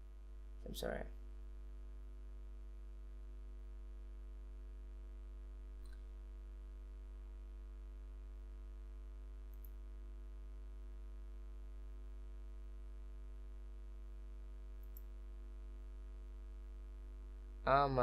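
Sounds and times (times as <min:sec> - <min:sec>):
electrical mains hum: 0:00.0 - 0:18.0
faint click: 0:05.8 - 0:06.1, 0:09.5 - 0:09.8, 0:14.8 - 0:15.2.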